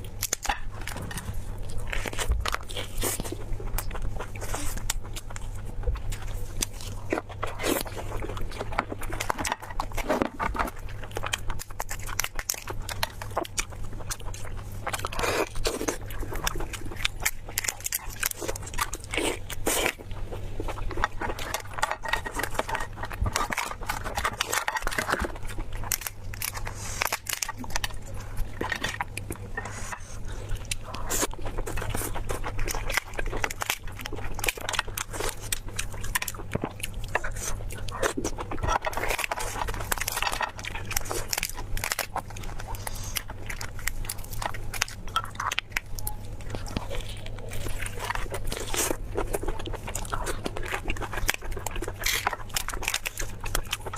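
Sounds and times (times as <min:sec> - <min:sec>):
close-miked eating and chewing: 0:00.0 - 0:53.9
steady low hum: 0:00.0 - 0:53.9.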